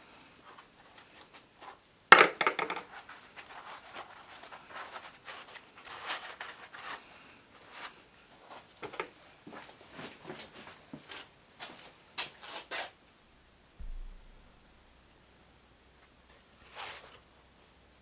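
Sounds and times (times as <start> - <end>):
sharp knock: 13.8 - 14.6.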